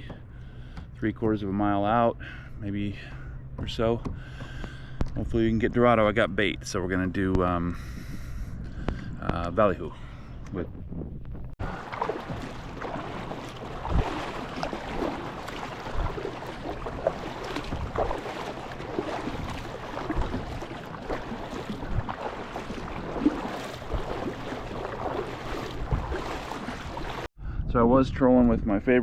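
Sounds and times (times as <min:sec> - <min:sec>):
wind on microphone: 0:10.5 - 0:29.0
water lapping against kayak hull: 0:11.5 - 0:27.3.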